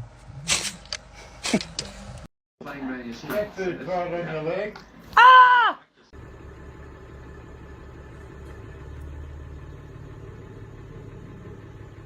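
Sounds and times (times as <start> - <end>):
low engine rumble: 6.1 - 12.0.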